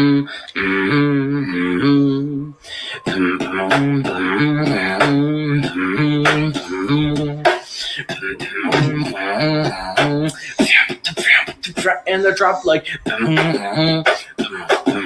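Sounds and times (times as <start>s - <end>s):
beatboxing hummed bass line: 3.0s - 15.0s
beatboxing clicks and snare hits: 5.0s - 6.7s, 7.5s - 7.9s, 8.7s - 12.0s, 13.1s - 15.0s.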